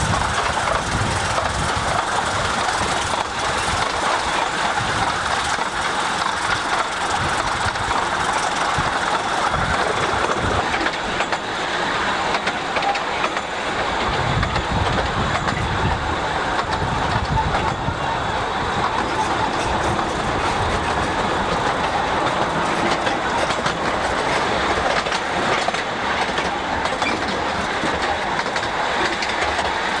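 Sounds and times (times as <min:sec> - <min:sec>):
train running on track: 0:00.0 - 0:30.0
wheels clickety-clack over rail joints: 0:00.0 - 0:30.0.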